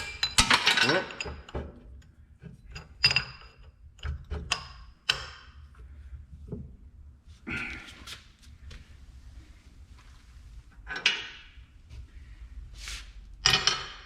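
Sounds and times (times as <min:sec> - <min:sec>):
metal tools clinking: 0:00.0 - 0:01.6.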